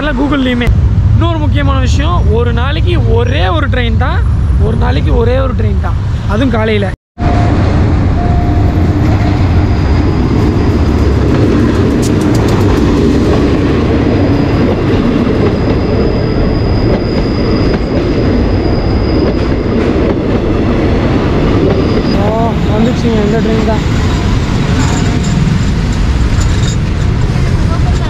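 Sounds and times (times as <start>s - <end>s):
wheels clacking over rail joints: 10.0s - 16.2s
faint brake squeal: 14.3s - 19.8s, 21.7s - 22.2s.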